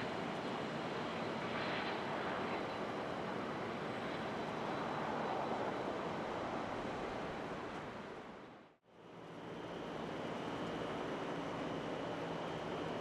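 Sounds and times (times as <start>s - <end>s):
high engine whine: 8.4s - 13.0s.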